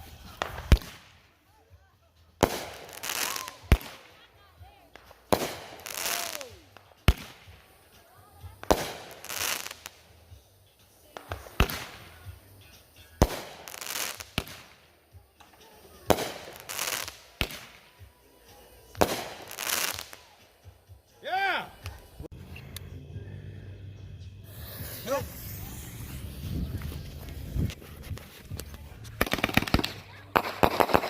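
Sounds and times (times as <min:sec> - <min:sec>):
fireworks bangs: 0:00.0 - 0:01.3, 0:04.9 - 0:07.9, 0:08.6 - 0:10.0, 0:11.2 - 0:12.4, 0:13.0 - 0:14.8, 0:15.5 - 0:18.0, 0:18.9 - 0:20.4, 0:24.5 - 0:31.0
crackling hiss: 0:02.4 - 0:23.0, 0:24.4 - 0:31.0.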